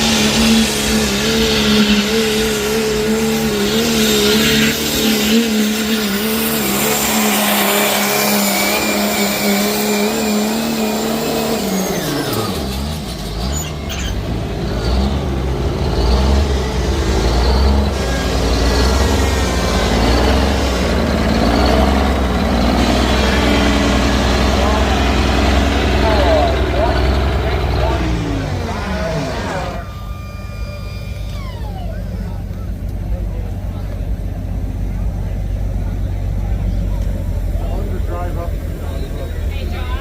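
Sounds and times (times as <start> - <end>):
diesel truck engine revving: 0.0 - 40.0
turbo whistle: 29.8 - 32.3.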